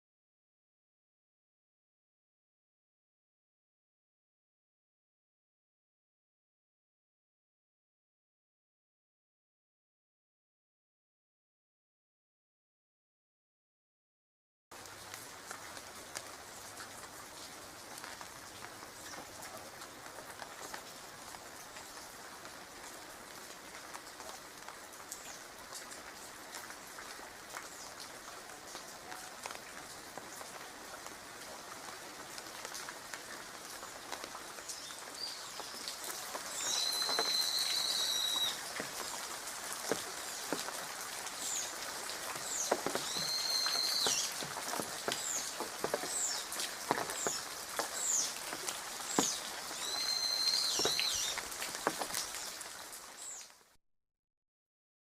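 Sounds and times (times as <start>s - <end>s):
steady rain: 14.7s - 53.8s
bird calling and chirping: 36.5s - 38.6s, 42.4s - 44.4s, 45.1s - 46.5s, 49.1s - 51.4s
drips and drops: 41.4s - 50.0s.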